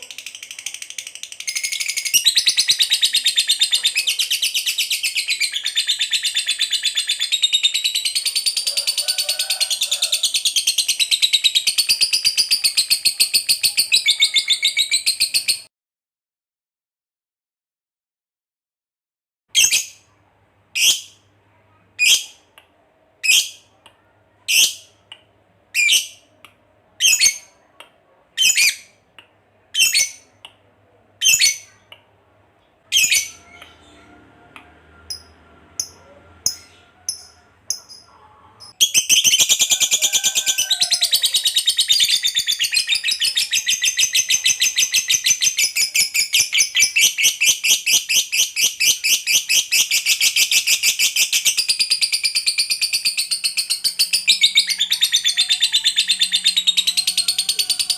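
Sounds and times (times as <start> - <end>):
lovebird chirping and chattering: 0.0 - 8.7, 9.8 - 15.7, 24.5 - 25.0, 25.7 - 26.3, 27.0 - 27.6, 28.4 - 29.0, 29.7 - 30.4, 31.2 - 31.9, 32.8 - 34.1, 35.0 - 57.9.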